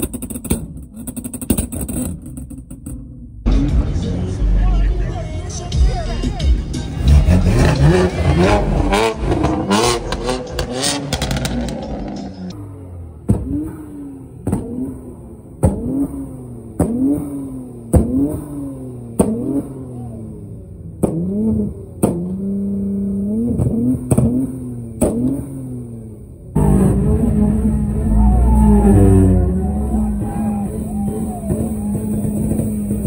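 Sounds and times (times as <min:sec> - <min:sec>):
car engine revving: 0:00.0 - 0:33.0
loud rock music: 0:03.5 - 0:12.5.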